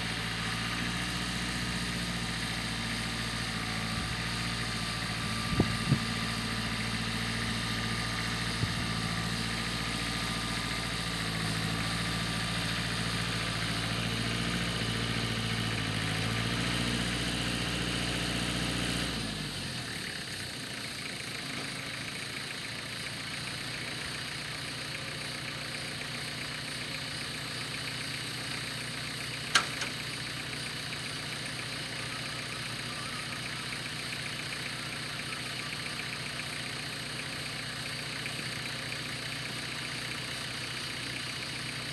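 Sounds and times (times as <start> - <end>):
tractor engine idling: 0.0 - 41.9
sharp click: 29.5 - 30.0.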